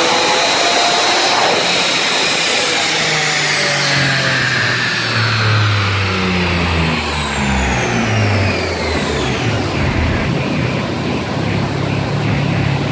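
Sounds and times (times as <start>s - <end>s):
high whine falling in pitch: 4.6s - 12.9s
low uneven engine note: 6.2s - 12.9s.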